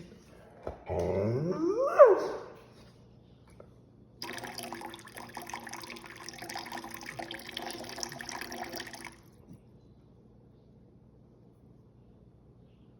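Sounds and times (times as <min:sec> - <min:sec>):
tap water running into sink: 0:04.2 - 0:09.2.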